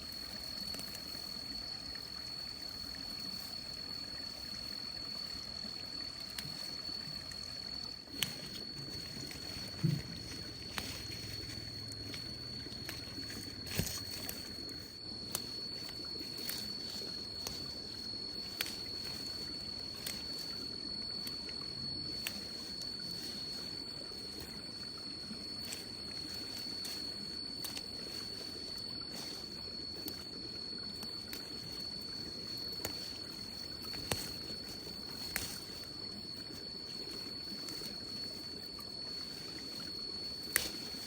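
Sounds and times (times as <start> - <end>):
insect high-pitched trill: 0.0 - 41.0
low background hiss: 0.0 - 41.0
faint clicks: 32.6 - 36.0, 40.4 - 41.0.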